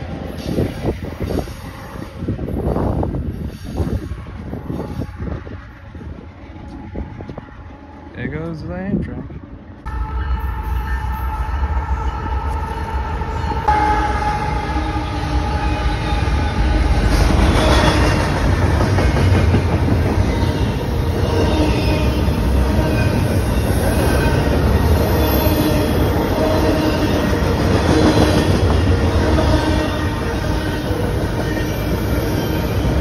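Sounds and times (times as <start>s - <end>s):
diesel locomotives passing: 0.0s - 33.0s
train wheel squeals: 0.3s - 7.8s, 15.3s - 33.0s
freight cars rumbling on rails: 11.4s - 33.0s.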